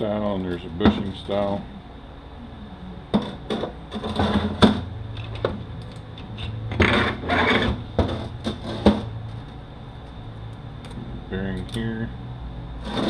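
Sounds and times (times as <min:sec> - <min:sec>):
metal scraping: 0:03.1 - 0:05.3, 0:06.2 - 0:09.4, 0:12.8 - 0:13.0.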